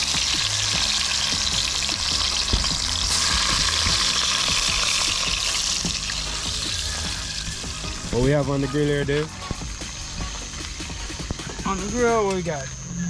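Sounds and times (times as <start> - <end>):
oil popping: 0.0 - 9.8
hot dogs sizzling in oil: 0.0 - 12.0.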